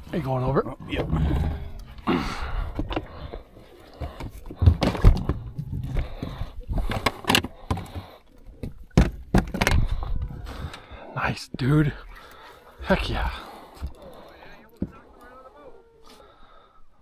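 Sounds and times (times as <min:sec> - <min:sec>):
knocks and thumps in a boat: 0:00.0 - 0:10.9, 0:12.7 - 0:15.3.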